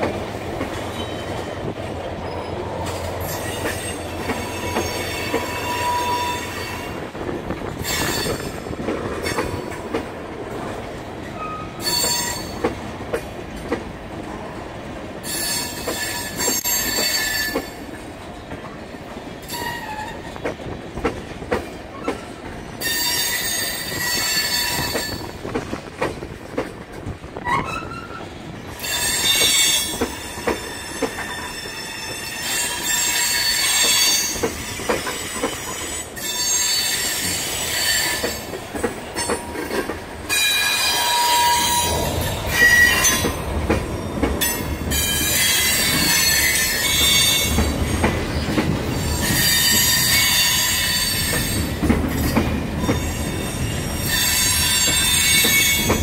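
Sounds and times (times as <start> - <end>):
freight train wheels rumbling on rail: 0.0 - 56.0
metallic wheel squeal: 3.2 - 7.0, 11.4 - 12.6, 27.4 - 38.4, 40.3 - 43.3.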